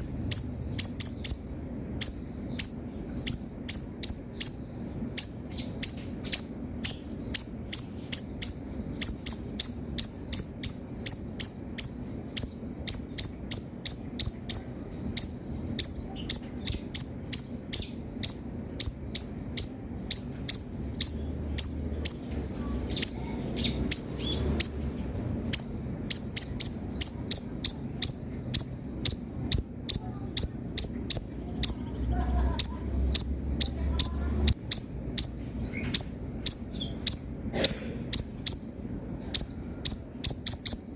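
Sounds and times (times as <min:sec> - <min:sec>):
bird high sharp chirps: 0:00.0 - 0:40.9.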